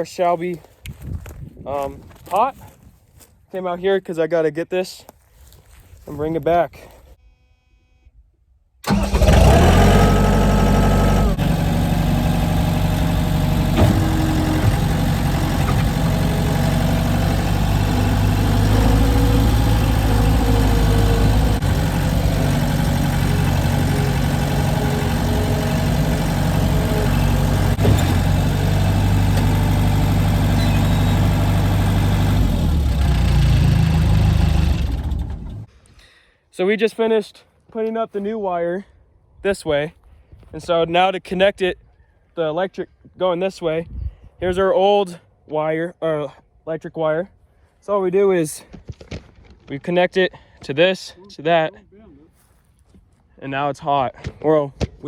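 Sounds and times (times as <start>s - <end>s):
vehicle engine running: 8.9s - 35.7s.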